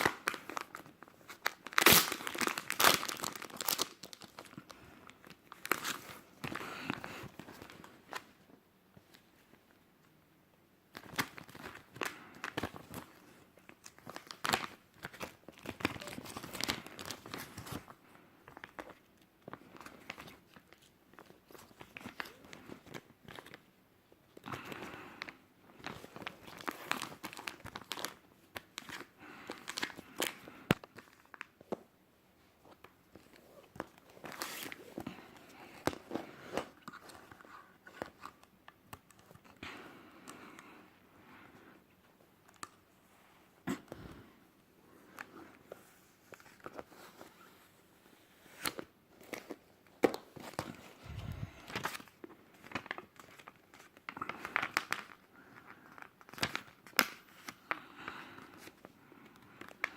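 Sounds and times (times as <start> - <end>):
plastic packaging crinkling: 0.0 - 8.2, 11.0 - 17.9, 25.8 - 31.6, 48.5 - 57.6.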